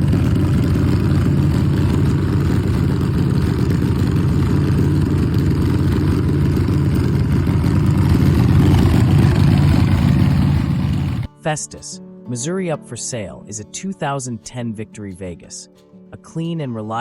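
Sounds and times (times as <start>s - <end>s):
motorcycle engine idling: 0.0s - 11.3s.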